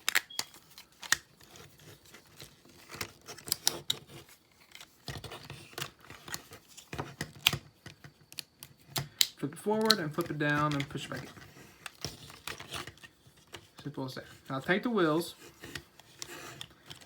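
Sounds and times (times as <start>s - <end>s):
plastic toy parts clicking: 0.0s - 1.3s, 7.2s - 13.7s.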